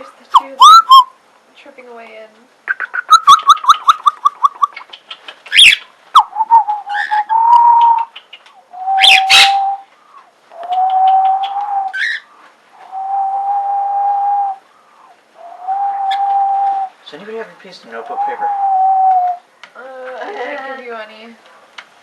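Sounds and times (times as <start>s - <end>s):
bird chirps: 0.3s - 1.1s, 2.7s - 13.4s
bird squawks: 0.3s - 1.2s, 2.7s - 12.9s
long whistled bird notes: 0.6s - 1.2s, 5.6s - 8.1s, 8.7s - 9.9s, 10.5s - 14.6s, 15.4s - 17.0s, 18.1s - 19.4s.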